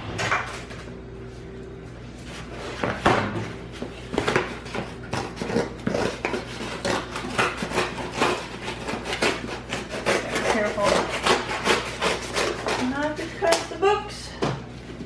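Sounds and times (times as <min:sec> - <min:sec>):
blade slicing cardboard: 0:04.2 - 0:12.9.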